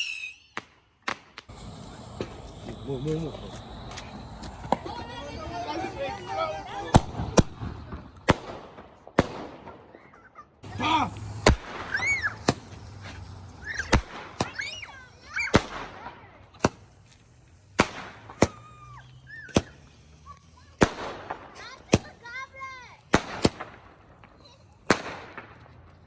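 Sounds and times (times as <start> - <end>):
firework whistles: 0.0 - 8.8, 10.6 - 25.6
fireworks banging: 0.0 - 26.0.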